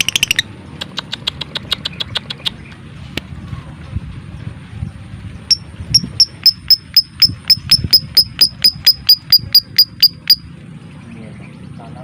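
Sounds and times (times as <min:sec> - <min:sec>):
bird chirping high and sharp: 0:00.0 - 0:02.7, 0:05.5 - 0:10.5.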